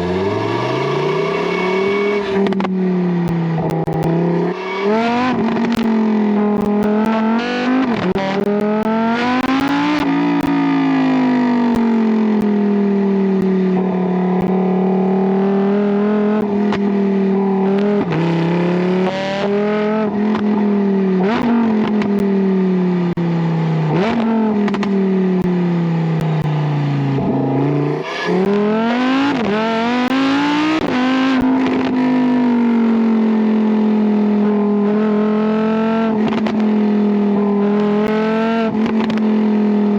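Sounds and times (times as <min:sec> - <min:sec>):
exhaust cracks: 0:00.0 - 0:12.7
sports car engine accelerating: 0:00.0 - 0:39.9.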